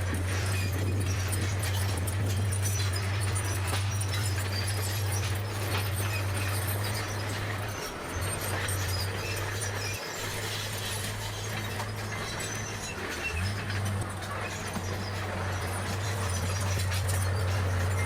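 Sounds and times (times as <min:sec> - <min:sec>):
bulldozer diesel engine droning: 0:00.0 - 0:18.0
clicks and clanks: 0:00.0 - 0:18.0.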